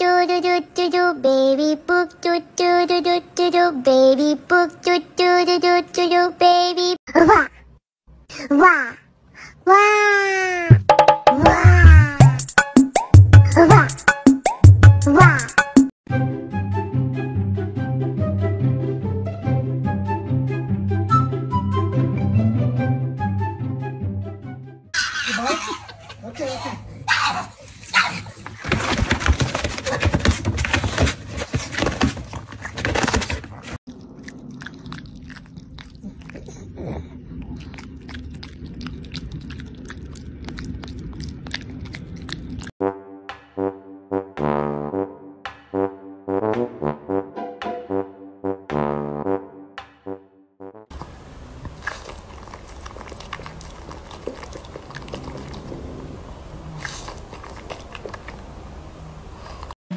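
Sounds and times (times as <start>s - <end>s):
dog chewing: 27.6s - 42.7s, 51.0s - 58.5s
dog ripping packing tape: 27.7s - 33.8s.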